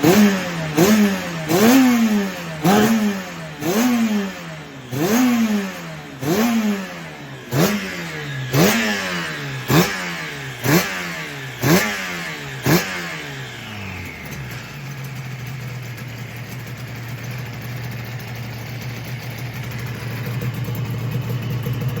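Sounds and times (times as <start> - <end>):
motorcycle engine revving and idling: 0.0 - 22.0.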